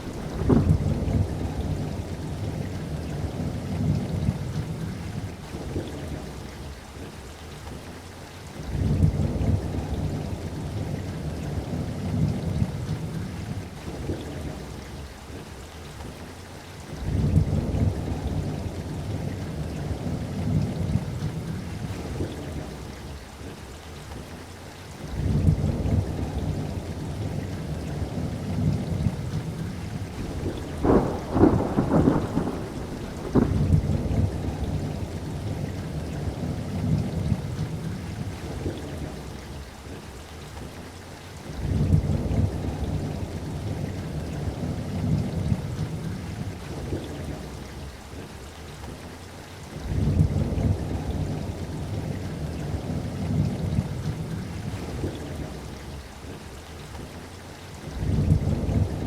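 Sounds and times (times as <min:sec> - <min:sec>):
sharp thunder claps: 0:00.0 - 0:01.9, 0:30.1 - 0:35.1
rolling thunder: 0:00.0 - 0:05.0, 0:25.1 - 0:39.1
steady rain: 0:00.0 - 0:59.0.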